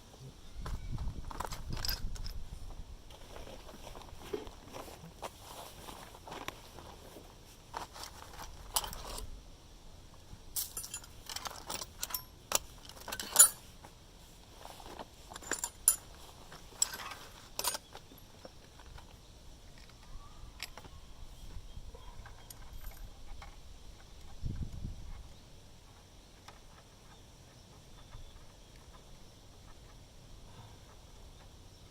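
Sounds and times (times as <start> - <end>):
metal tools clinking: 1.4 - 2.4, 7.8 - 9.3, 10.6 - 13.7, 15.3 - 19.1, 22.2 - 23.2.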